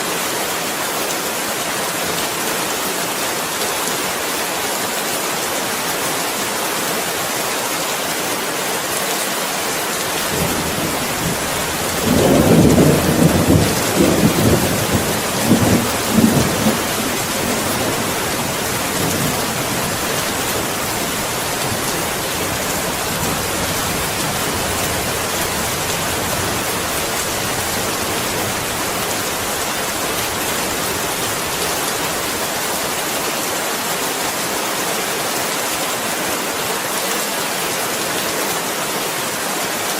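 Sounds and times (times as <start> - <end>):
heavy rain hissing: 8.2 - 36.9
thunder rumbling: 10.2 - 32.4.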